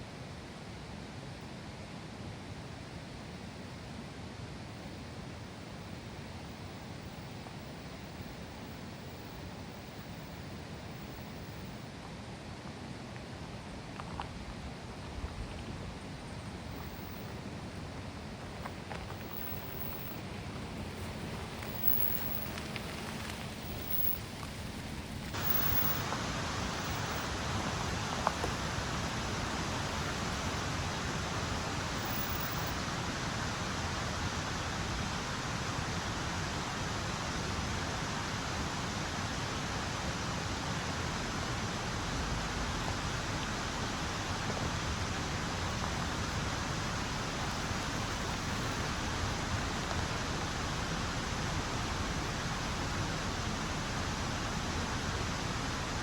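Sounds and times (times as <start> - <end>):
water hissing: 18.2 - 37.8.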